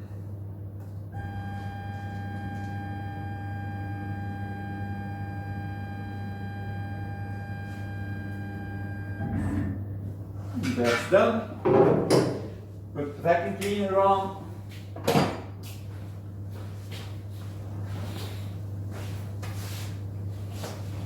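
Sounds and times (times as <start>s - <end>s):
low electrical hum: 0.0s - 21.0s
stepper motor whining: 1.2s - 9.2s.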